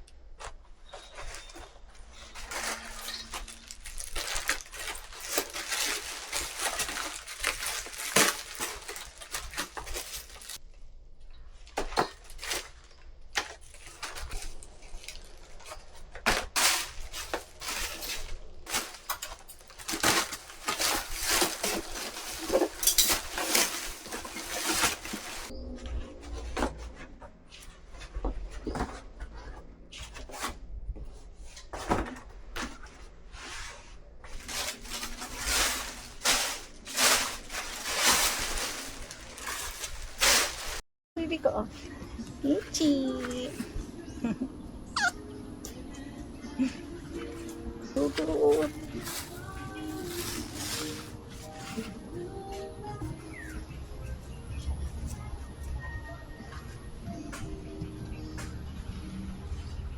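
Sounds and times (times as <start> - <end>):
dishes and utensils clattering: 16.5 - 25.5.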